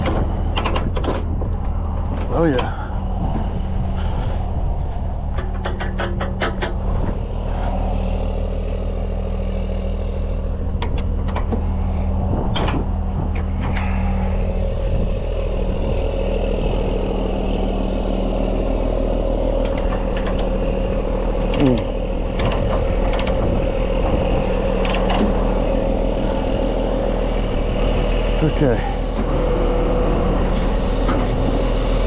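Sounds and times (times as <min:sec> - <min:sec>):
heavy truck engine running: 0:00.0 - 0:32.0
sharp clicks: 0:19.6 - 0:20.6, 0:21.4 - 0:23.4.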